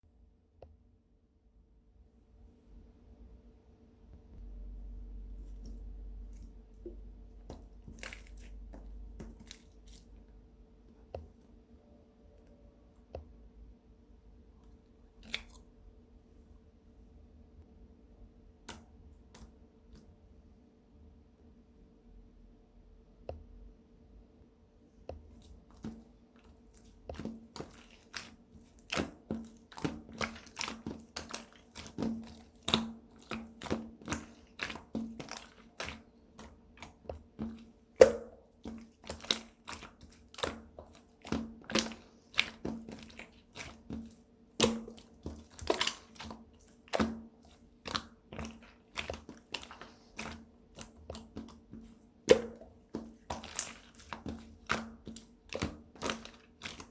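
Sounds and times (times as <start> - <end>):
slime squishing with clicking pops: 25.4 - 56.9.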